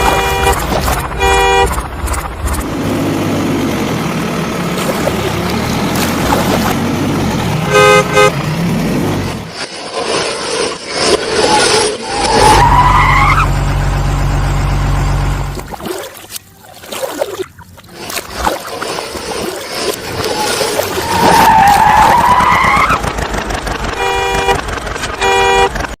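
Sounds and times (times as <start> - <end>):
car horn honks: 0.0 - 1.8, 7.6 - 8.4, 23.9 - 26.0
engine revving with whine: 0.0 - 15.7, 19.1 - 26.0.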